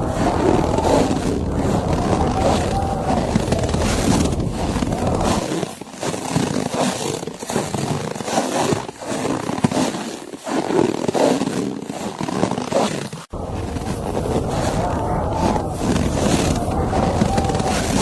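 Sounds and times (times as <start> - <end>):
low rumble: 0.0 - 5.4, 13.4 - 18.0
blizzard wind: 0.0 - 5.5, 13.3 - 18.0
snow crunching: 0.0 - 5.5, 13.3 - 18.0.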